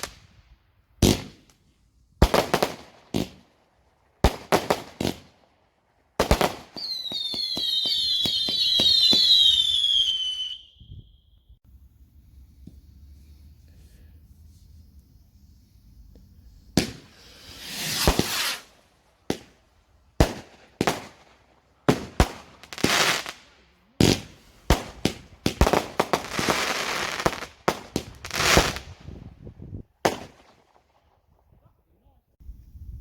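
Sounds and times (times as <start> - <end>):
fireworks hissing and crackling: 0.0 - 0.4, 1.0 - 3.6, 6.2 - 10.6, 12.4 - 29.3
fireworks bangs: 1.0 - 1.5, 6.2 - 10.6, 16.7 - 19.6, 24.0 - 29.3, 30.0 - 31.0.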